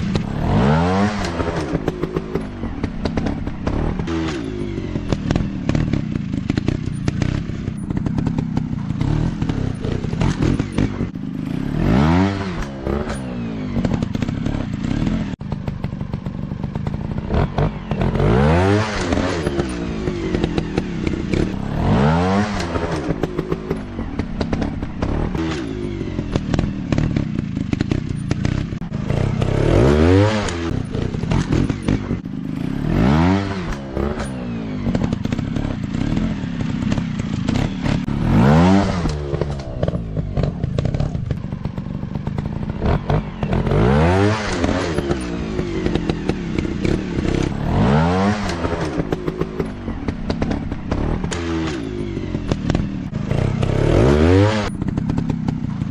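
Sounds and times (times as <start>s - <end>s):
motorcycle engines revving: 0.0s - 55.9s.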